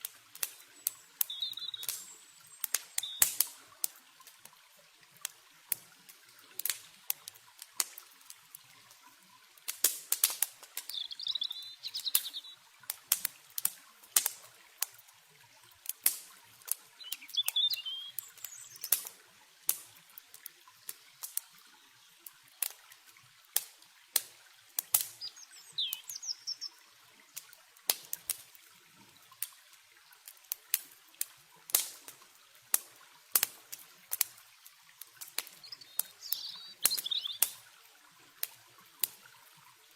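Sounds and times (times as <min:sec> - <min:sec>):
campfire crackling and popping: 0:00.0 - 0:28.7, 0:29.3 - 0:39.4
river water flowing: 0:00.0 - 0:39.9
bird chirps: 0:00.8 - 0:03.2, 0:10.9 - 0:12.6, 0:17.0 - 0:18.9, 0:25.1 - 0:26.8, 0:35.6 - 0:37.6.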